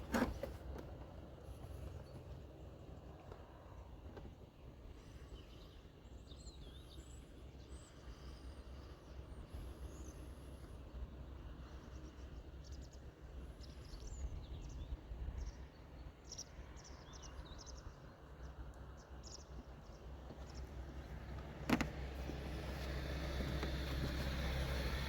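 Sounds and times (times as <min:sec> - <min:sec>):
small birds chirping: 0:05.0 - 0:25.0.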